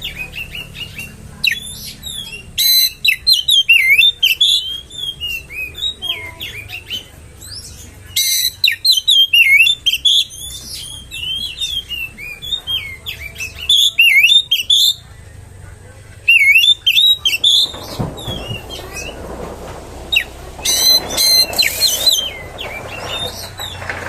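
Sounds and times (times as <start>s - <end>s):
bird singing whistled song: 0.0s - 15.0s.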